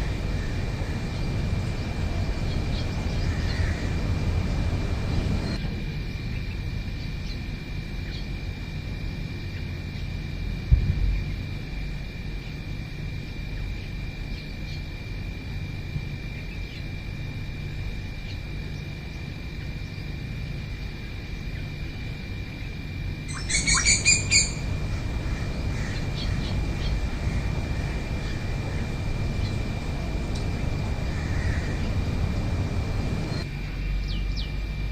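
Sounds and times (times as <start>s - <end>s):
high thin whine: 0.0s - 5.9s
low rumble: 10.6s - 12.2s
bird harsh repeated notes: 23.3s - 24.7s
faint bird chirps: 23.3s - 24.8s.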